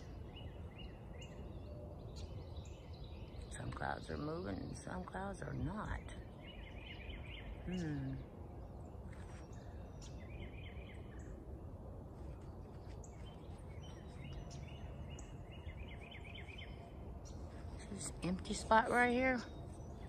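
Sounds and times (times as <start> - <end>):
songbird chirping: 0.0 - 20.0.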